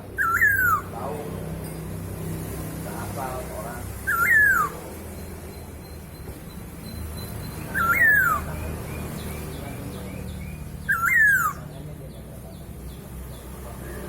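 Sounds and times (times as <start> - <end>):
bird whistling calls: 0.1 - 1.0, 4.0 - 11.8.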